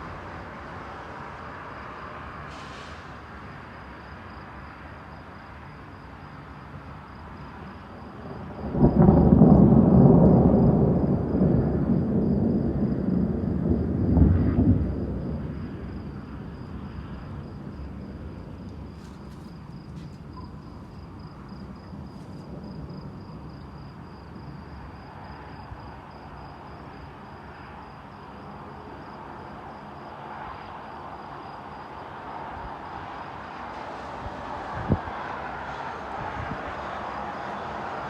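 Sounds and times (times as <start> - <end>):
pulsing insect trill: 3.7 - 30.2
storm noise: 5.2 - 38.0
thunderclap: 8.0 - 18.9.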